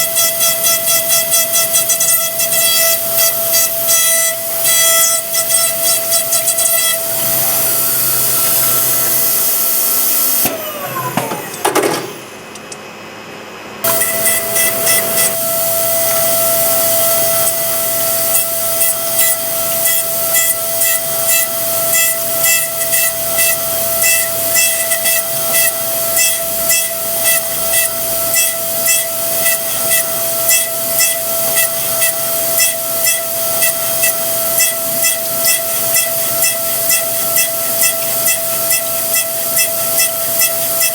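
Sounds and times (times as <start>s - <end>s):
milling machine spindle whine: 0.0s - 12.8s, 13.8s - 40.9s
coolant hiss: 13.9s - 40.9s.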